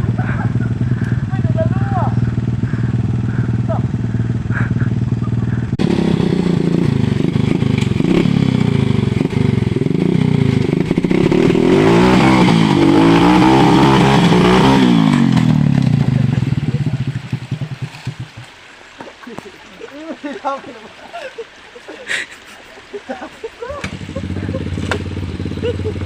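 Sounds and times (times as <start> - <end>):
small motorcycle engine revving: 0.0 - 18.5, 23.7 - 26.0.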